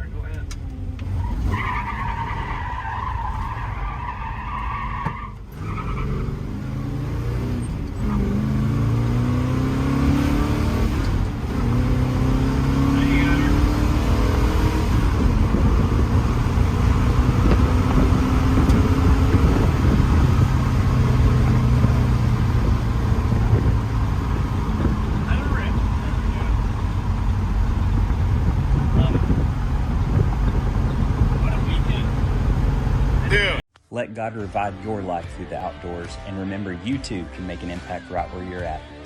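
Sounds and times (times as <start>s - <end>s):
vehicle engine accelerating: 5.5s - 33.6s.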